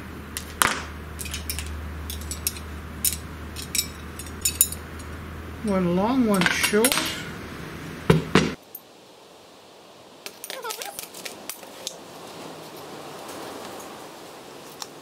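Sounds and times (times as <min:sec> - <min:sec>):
metal rods clinking: 0:00.3 - 0:07.4, 0:10.3 - 0:12.0.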